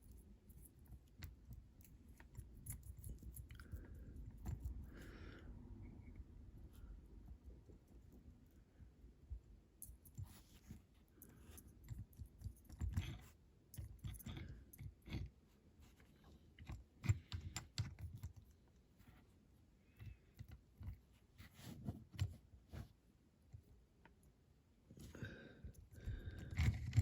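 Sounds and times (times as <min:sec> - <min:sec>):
small clicks taps and knocks: 0:16.6 - 0:18.6.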